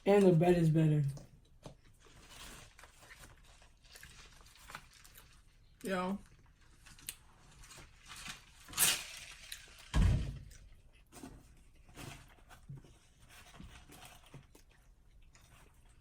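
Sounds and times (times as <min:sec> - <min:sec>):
chewing: 0:01.1 - 0:05.6, 0:06.2 - 0:07.9, 0:13.2 - 0:16.0.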